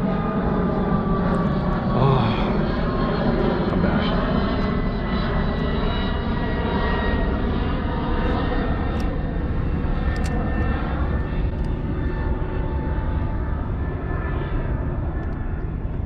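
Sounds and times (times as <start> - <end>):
airplane engine rumble: 0.0 - 16.0
faint whining tones: 0.0 - 16.0
sharp clicks: 10.1 - 10.4.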